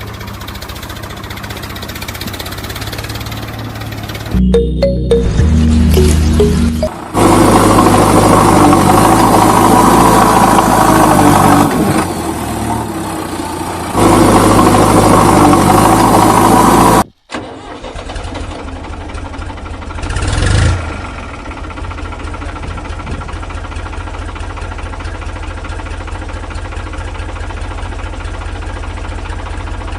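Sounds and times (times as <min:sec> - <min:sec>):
diesel engine idling and revving: 0:00.0 - 0:04.4, 0:07.0 - 0:17.1, 0:17.8 - 0:29.9
loud music with held notes: 0:04.4 - 0:06.9.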